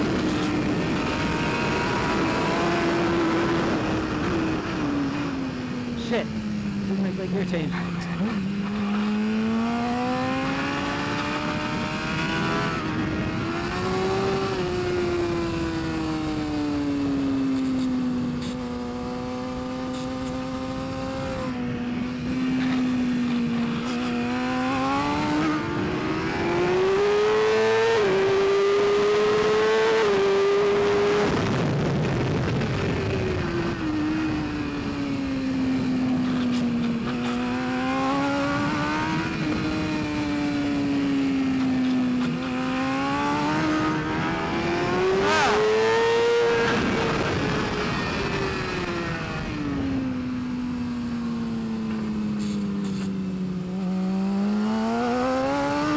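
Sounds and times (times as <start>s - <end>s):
superbike engine revving: 0.0s - 50.3s, 52.1s - 55.9s.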